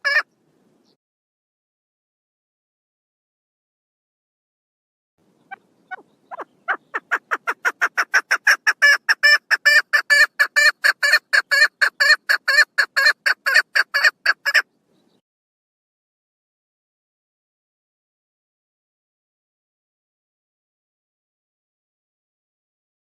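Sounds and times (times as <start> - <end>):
partridge calling: 5.4 - 15.2.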